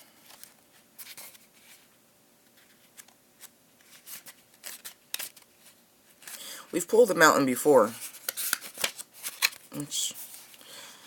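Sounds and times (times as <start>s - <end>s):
paper pages rustling: 0.2s - 1.9s, 2.5s - 6.4s, 7.9s - 10.6s.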